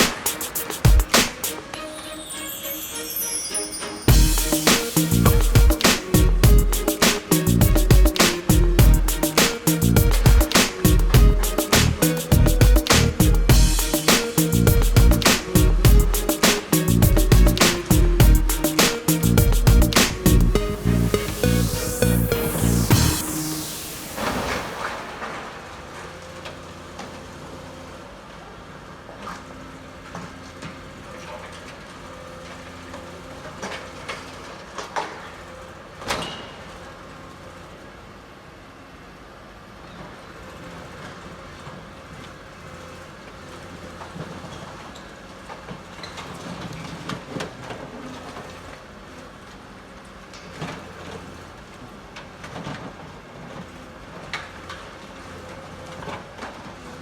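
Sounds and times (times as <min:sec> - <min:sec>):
heavy machinery running: 0:04.1 - 0:26.8.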